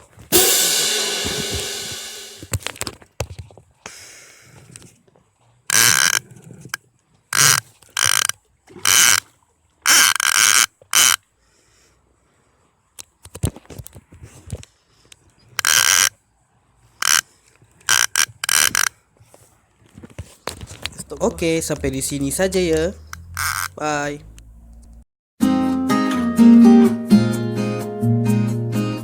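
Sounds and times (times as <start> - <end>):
fishing reel ratcheting: 5.7 - 6.2, 7.4 - 9.2, 9.8 - 11.2, 15.6 - 16.1, 17.0 - 17.2, 17.9 - 18.9, 23.1 - 23.8.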